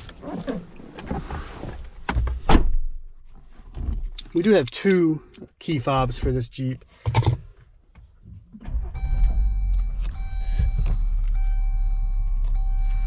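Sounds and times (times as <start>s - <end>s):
car engine starting and idling: 7.0s - 13.0s
high electronic warning tone: 9.0s - 13.0s.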